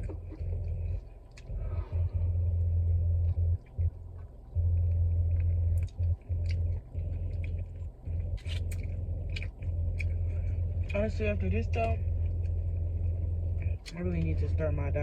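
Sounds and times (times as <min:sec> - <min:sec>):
loud low rumble: 0:00.0 - 0:15.0
crunching while eating: 0:03.2 - 0:10.9.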